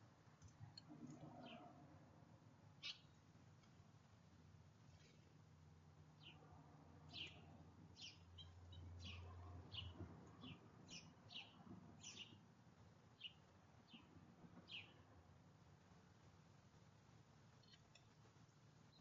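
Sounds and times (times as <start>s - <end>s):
faint bird chirping: 0.4s - 1.8s, 2.8s - 3.2s, 7.1s - 12.4s.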